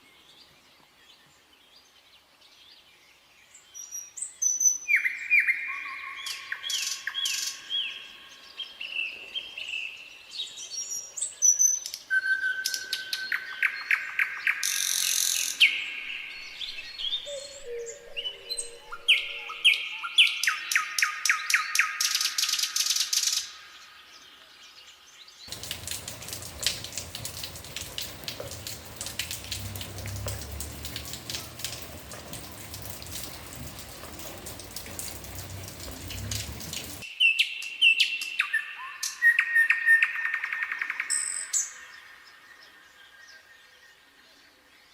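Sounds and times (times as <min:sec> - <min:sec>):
songbirds singing: 0:00.0 - 0:44.9
dense steady patter: 0:25.5 - 0:37.0.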